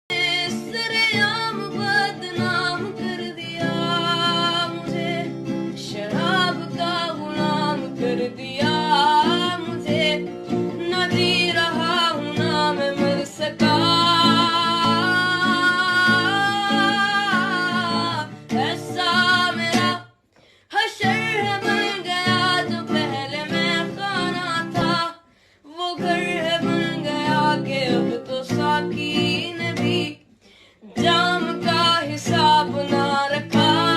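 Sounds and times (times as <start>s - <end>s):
person singing with vibrato: 0.1s - 20.1s, 20.7s - 33.9s
plucked guitar: 0.1s - 20.2s, 20.8s - 25.2s, 25.8s - 33.9s.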